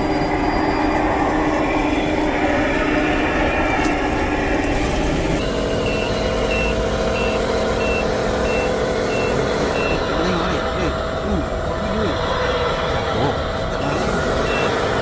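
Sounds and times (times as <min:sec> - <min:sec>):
engine drone: 0:00.0 - 0:15.0
motor hum: 0:05.2 - 0:15.0
truck reversing beeper: 0:05.4 - 0:15.0.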